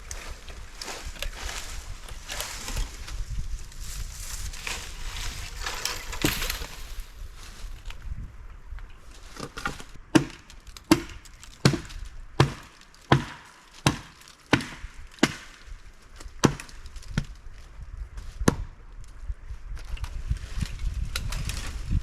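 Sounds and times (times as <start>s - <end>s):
axe chopping wood: 5.7s - 6.8s, 9.6s - 15.6s, 16.4s - 16.8s.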